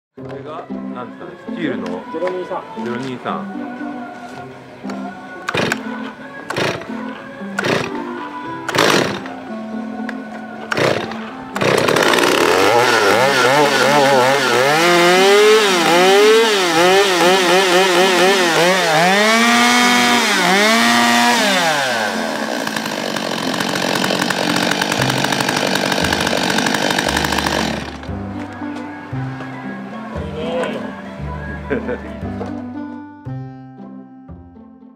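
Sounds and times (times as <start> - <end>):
chainsaw engine revving: 5.5 - 5.9, 6.5 - 6.9, 7.6 - 9.4, 10.7 - 28.2.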